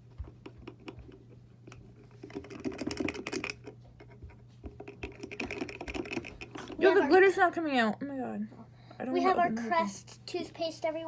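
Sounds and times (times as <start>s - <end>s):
objects clicking and clattering: 0.2s - 7.0s.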